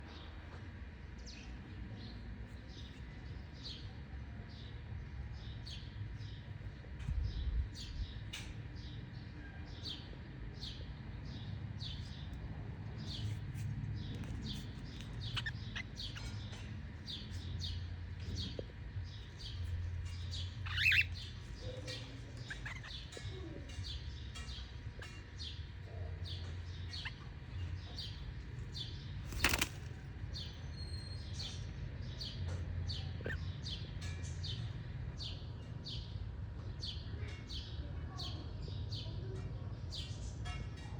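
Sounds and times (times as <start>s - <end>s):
cockatiels chirping: 14.5s - 16.5s, 20.1s - 25.2s.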